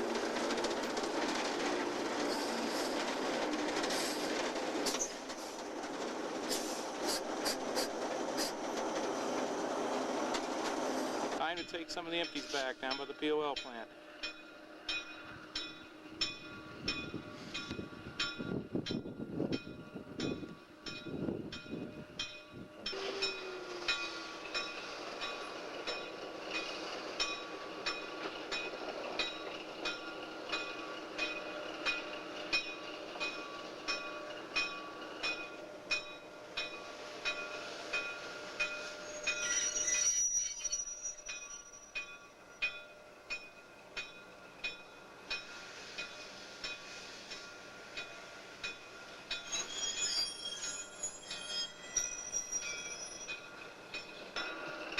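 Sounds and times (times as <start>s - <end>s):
train wheels clicking over rail joints: 0.0s - 19.0s, 19.6s - 54.9s
high wheel squeal: 38.8s - 42.7s, 49.4s - 53.5s.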